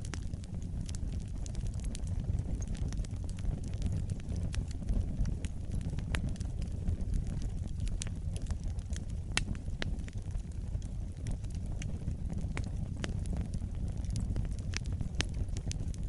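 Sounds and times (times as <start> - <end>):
fire flames rumbling: 0.0 - 16.0
wood fire crackles and pops: 0.0 - 16.0.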